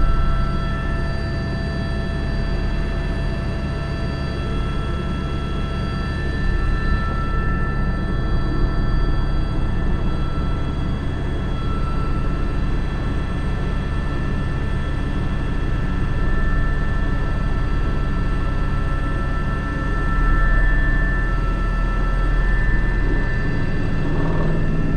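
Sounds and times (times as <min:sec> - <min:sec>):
helicopter turbine whine: 0:00.0 - 0:24.9
helicopter rotor thrum: 0:22.4 - 0:24.9.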